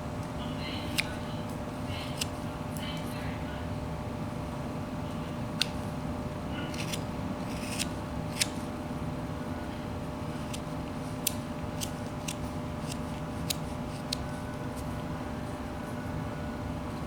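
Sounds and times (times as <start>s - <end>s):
steady low hum: 0.0s - 17.0s
knife whittling wood: 6.7s - 8.6s.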